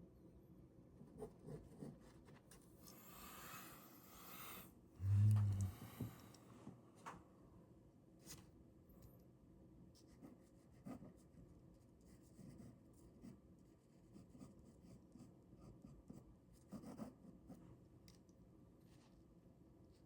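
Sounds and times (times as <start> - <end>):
pen scratching on paper: 1.0 - 2.4, 10.1 - 11.4, 12.0 - 17.6.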